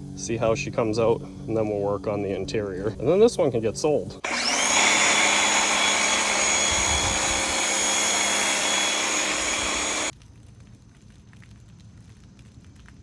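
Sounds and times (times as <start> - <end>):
electric motor machine whine: 4.1 - 10.1.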